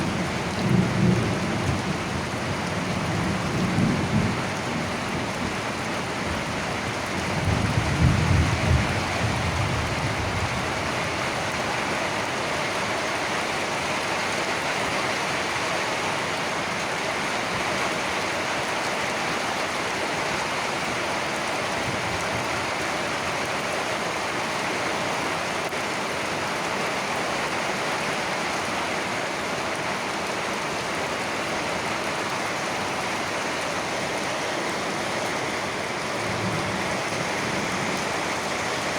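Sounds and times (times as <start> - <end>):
steady rain falling: 0.0 - 38.9
thunder rumbling: 7.2 - 11.3.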